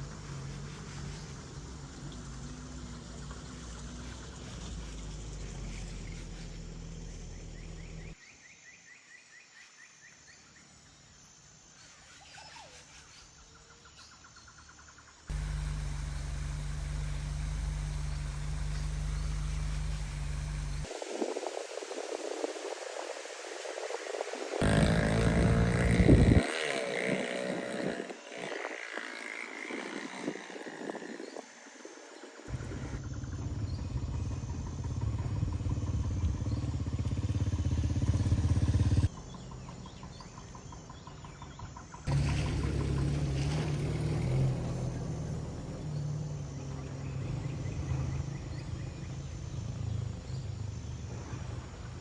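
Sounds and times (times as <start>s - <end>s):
birds chirping: 13.8s - 20.9s, 24.6s - 31.6s, 32.4s - 44.4s
car engine humming: 15.3s - 20.9s, 24.6s - 28.2s, 32.5s - 39.1s, 42.1s - 48.4s.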